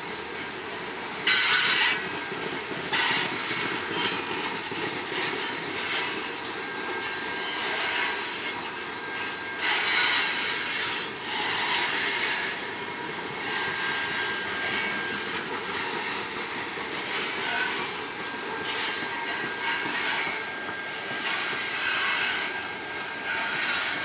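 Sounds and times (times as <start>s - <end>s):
train wheels rumbling and rattling: 0.0s - 24.0s
high wheel squeal: 5.2s - 24.0s.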